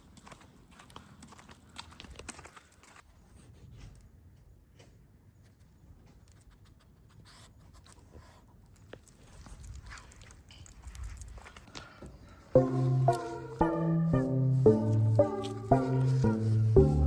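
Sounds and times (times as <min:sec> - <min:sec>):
dog claws clicking on ground: 0:00.0 - 0:03.0, 0:08.7 - 0:12.0.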